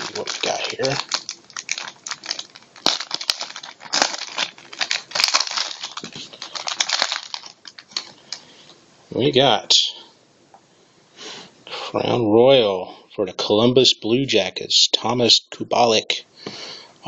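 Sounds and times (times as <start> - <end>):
wrapper tearing and crinkling: 0.0 - 8.4.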